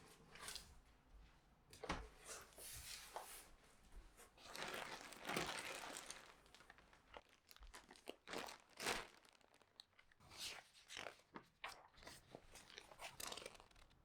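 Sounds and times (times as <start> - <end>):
packaging crinkling and tearing: 4.5 - 10.1.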